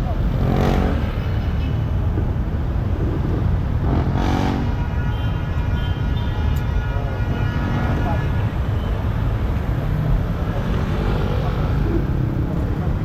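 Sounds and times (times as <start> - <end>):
road and traffic noise: 0.0 - 13.0
wind on microphone: 2.0 - 4.8.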